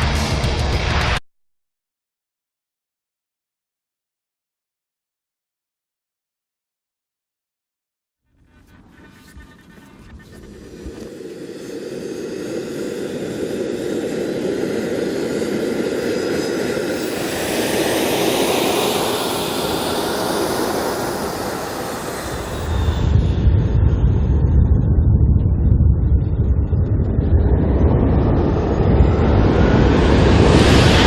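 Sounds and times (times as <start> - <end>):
jet engine whine: 8.4 - 31.0
jet engines roaring past: 8.4 - 31.0
deep low rumble: 8.5 - 19.9, 21.1 - 31.0.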